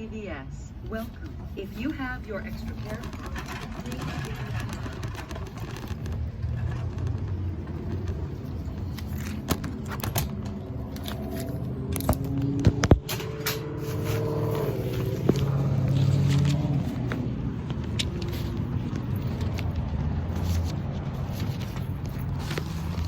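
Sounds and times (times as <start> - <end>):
sharp clicks and knocks: 2.4 - 13.8.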